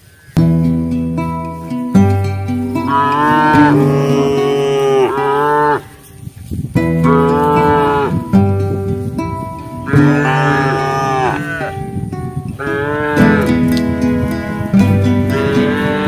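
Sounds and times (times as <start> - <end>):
cattle mooing: 2.5 - 6.1, 6.9 - 8.3, 9.8 - 11.9, 12.6 - 16.0.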